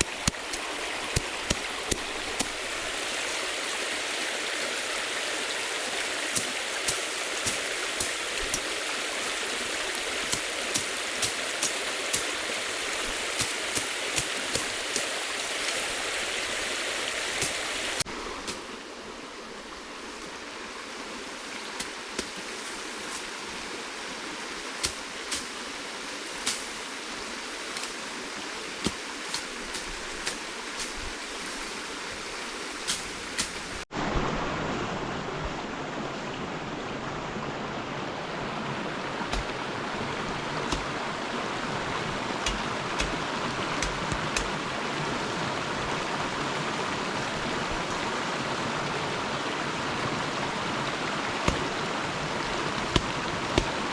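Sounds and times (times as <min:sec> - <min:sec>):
river water rushing: 0:00.0 - 0:53.9
sharp clicks and knocks: 0:43.8 - 0:44.6.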